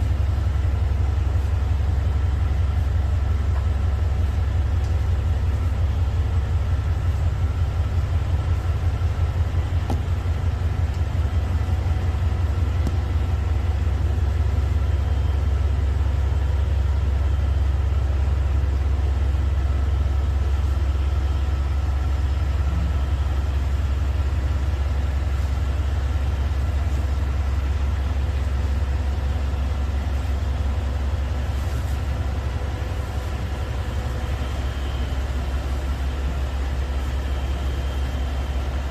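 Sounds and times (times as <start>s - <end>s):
train rumbling: 0.0s - 38.9s
faint steady tones: 26.8s - 38.9s.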